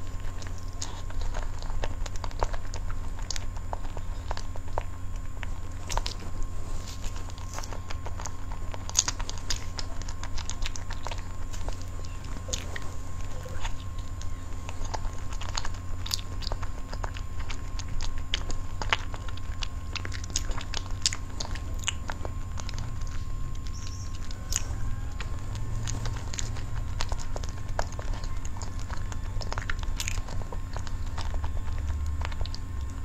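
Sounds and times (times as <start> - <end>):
person chewing with wet smacks: 0.0 - 33.0
steady low hum: 0.0 - 33.0.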